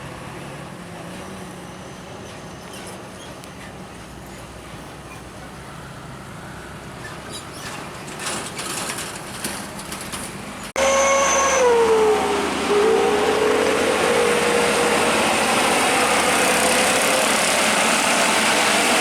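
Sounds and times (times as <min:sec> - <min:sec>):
highway traffic rushing: 0:00.0 - 0:19.0
passing truck pitched tone: 0:10.8 - 0:19.0.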